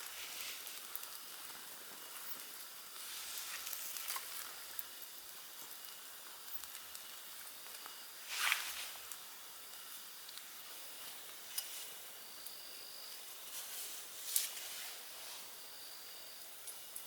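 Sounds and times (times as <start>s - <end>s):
rain falling in forest: 0.0s - 17.0s
light ticks: 3.7s - 7.1s.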